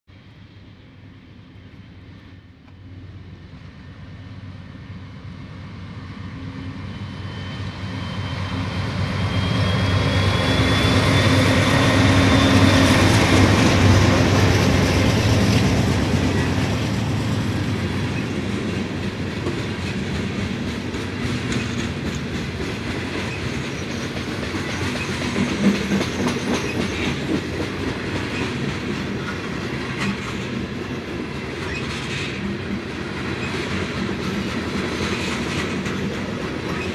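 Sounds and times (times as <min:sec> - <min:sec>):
diesel locomotives passing: 0:00.1 - 0:36.9
steel wheels clacking on rails: 0:07.0 - 0:36.9.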